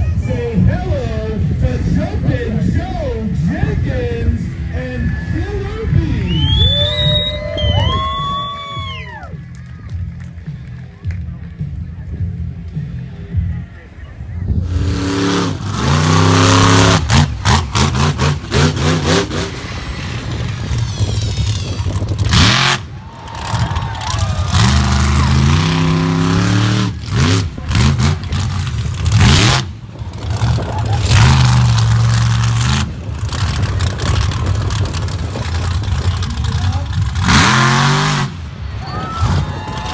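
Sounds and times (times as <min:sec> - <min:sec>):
monster truck engine revving: 0:03.6 - 0:07.4, 0:14.6 - 0:39.9.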